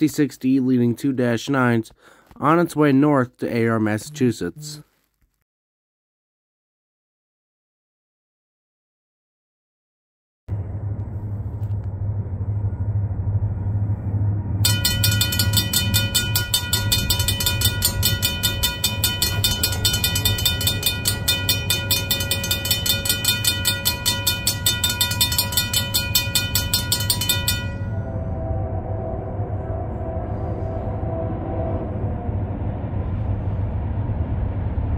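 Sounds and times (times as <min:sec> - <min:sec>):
train low rumble: 0:10.5 - 0:34.9
rapid clatter with ringing tones: 0:14.6 - 0:28.1.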